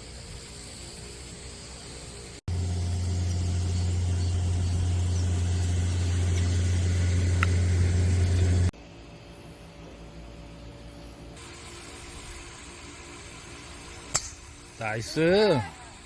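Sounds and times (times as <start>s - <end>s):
golf cart motor hum: 2.5s - 8.7s.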